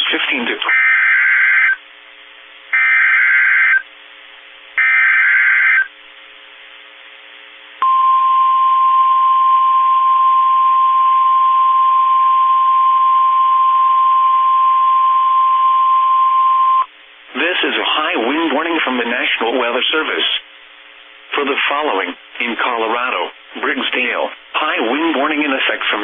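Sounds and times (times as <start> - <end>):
steady warning alarm tone: 0.7 - 1.8, 2.8 - 3.8, 4.8 - 5.9, 7.8 - 16.9
digital data bursts: 2.8 - 3.8, 4.8 - 5.9.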